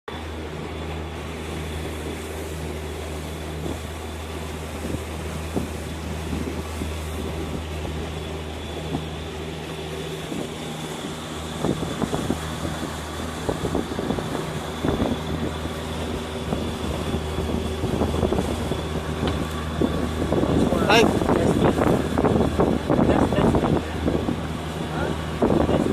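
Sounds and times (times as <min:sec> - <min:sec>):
outboard motor running: 0:00.1 - 0:25.9
water splashes: 0:00.1 - 0:25.9.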